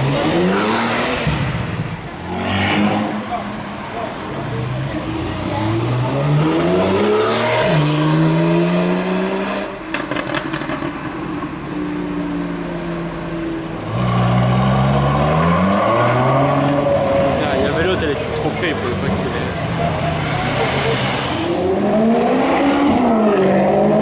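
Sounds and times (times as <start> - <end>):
car engine accelerating hard: 13.8 - 24.0.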